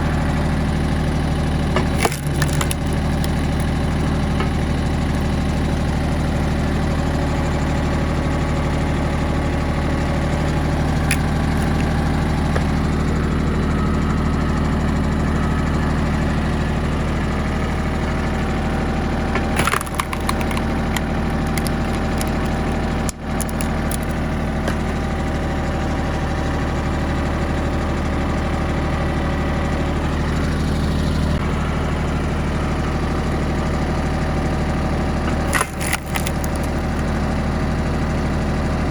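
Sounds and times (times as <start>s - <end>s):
tractor diesel engine running: 0.0s - 38.9s
wood splitting cracks: 1.8s - 5.2s, 11.0s - 12.7s, 19.4s - 24.9s, 35.3s - 37.1s.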